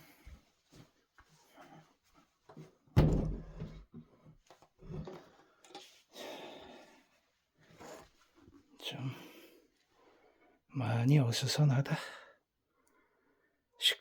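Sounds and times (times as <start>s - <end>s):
heavy wooden furniture thumping: 3.0s - 3.8s.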